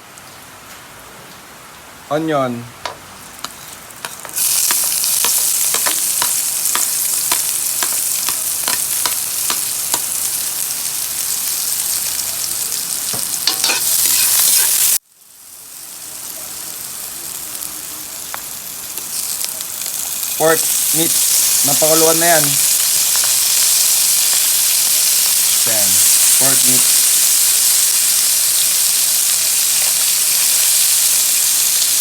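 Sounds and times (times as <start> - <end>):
onion and garlic sizzling in oil: 2.4 - 32.0
spatula clicking in pan: 3.4 - 10.2.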